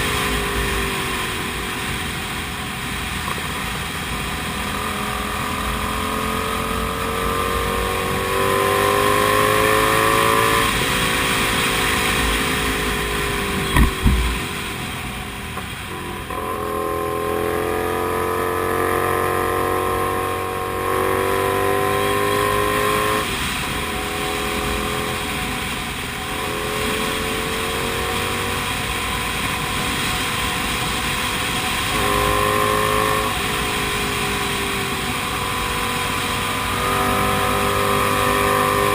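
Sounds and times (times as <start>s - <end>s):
motorcycle engine accelerating: 0.0s - 38.9s
low thump: 13.5s - 14.7s.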